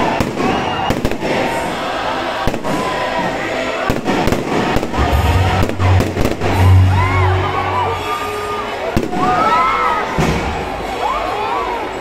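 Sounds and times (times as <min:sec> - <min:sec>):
fireworks bangs and crackles: 0:00.0 - 0:07.0, 0:08.8 - 0:10.9
background music with deep bass: 0:04.8 - 0:08.4.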